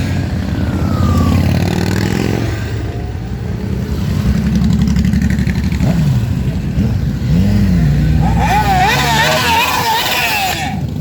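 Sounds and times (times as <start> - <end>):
motorcycle engines running: 0.0 - 11.0
motorcycle engine revving: 3.6 - 11.0.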